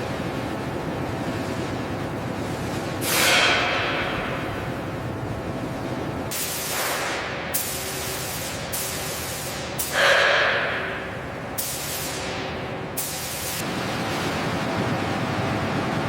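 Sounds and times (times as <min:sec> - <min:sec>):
hissing spray bursts: 0:06.3 - 0:10.5, 0:11.6 - 0:13.6
steady rushing noise: 0:13.5 - 0:16.0.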